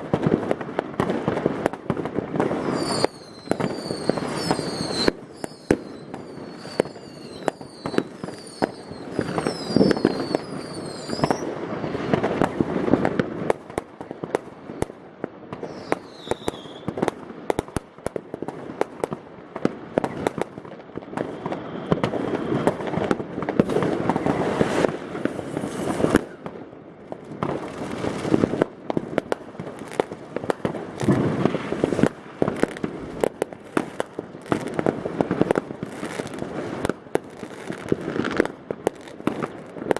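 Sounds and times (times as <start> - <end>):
firecrackers banging and crackling: 0.0 - 39.9
whistling rockets: 2.3 - 12.8, 15.5 - 17.1, 21.2 - 26.5.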